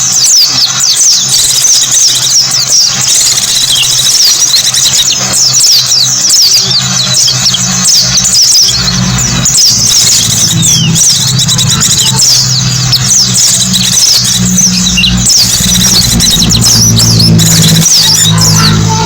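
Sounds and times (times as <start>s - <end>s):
birds twittering: 0.0s - 19.0s
low hum: 6.6s - 19.0s.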